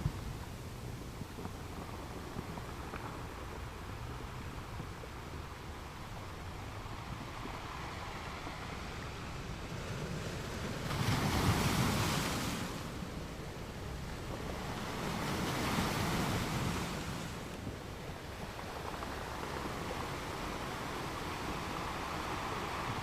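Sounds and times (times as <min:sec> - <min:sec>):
ocean waves breaking: 0:05.8 - 0:23.0.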